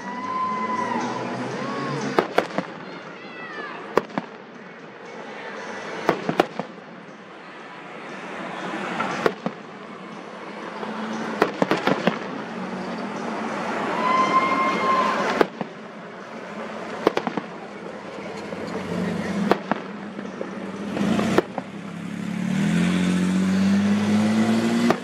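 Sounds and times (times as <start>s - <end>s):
hissing crackling fireworks: 1.6s - 4.8s, 5.6s - 6.9s, 8.7s - 22.1s
fireworks bangs: 1.9s - 3.2s, 3.8s - 4.6s, 6.0s - 6.9s, 9.0s - 9.8s, 10.8s - 13.0s, 14.0s - 21.9s
high whistle-like tone: 13.8s - 15.4s.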